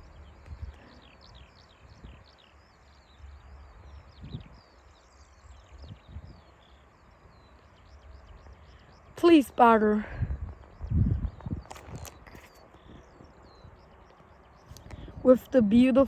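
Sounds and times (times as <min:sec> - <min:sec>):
wind on microphone: 0:00.0 - 0:06.6, 0:08.1 - 0:16.0
small birds chirping: 0:00.0 - 0:16.0.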